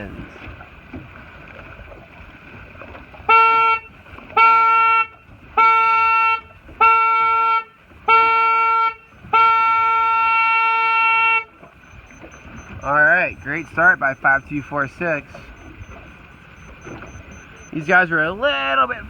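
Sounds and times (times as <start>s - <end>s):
race-start horn blasts: 3.3s - 18.1s.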